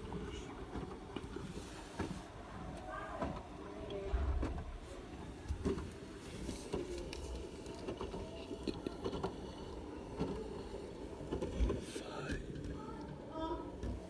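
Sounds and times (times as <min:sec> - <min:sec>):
washing machine drum tumbling: 0:04.0 - 0:06.0.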